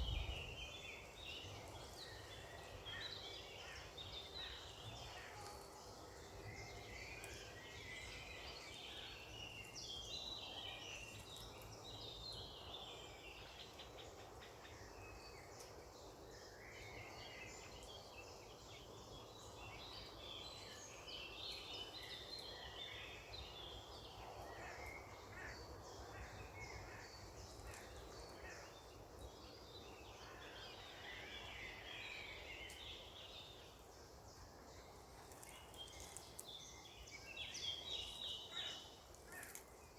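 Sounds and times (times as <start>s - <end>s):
birds singing and chirping: 0.0s - 5.5s.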